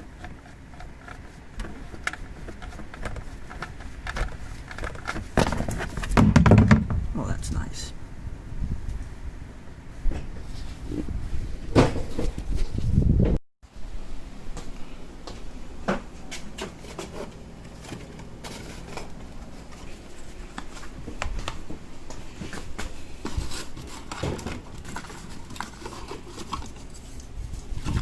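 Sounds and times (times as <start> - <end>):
low steady hum: 0.0 - 13.1.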